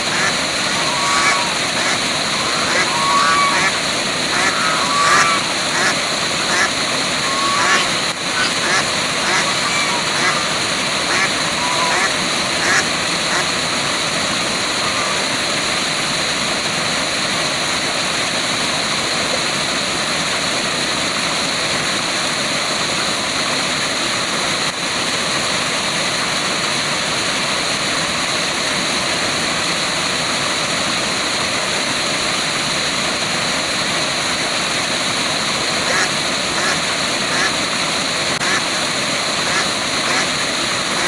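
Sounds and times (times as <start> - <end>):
brief calls: 0.0 - 12.8
waterfall rushing: 0.0 - 24.4, 25.0 - 41.0.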